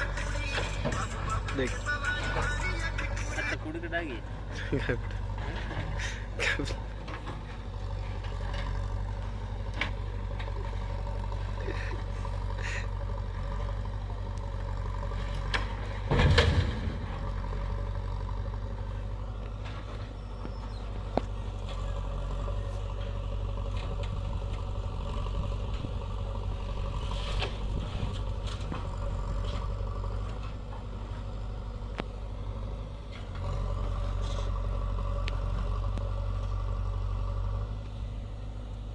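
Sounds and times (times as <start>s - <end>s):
diesel engine running: 0.0s - 38.9s
knocks and clatter: 15.2s - 17.3s.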